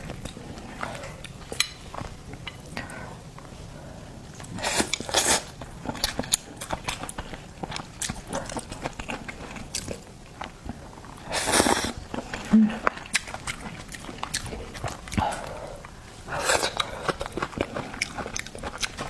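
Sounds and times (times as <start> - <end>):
crunchy chewing of seafood: 4.3 - 19.0.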